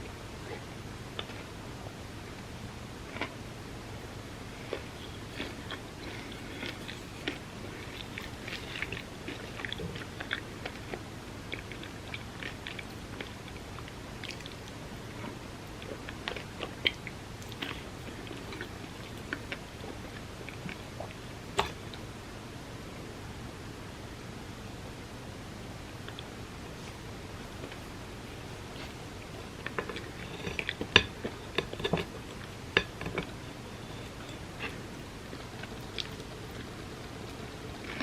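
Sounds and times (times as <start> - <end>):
wet chewing: 4.6 - 22.0, 27.6 - 38.0.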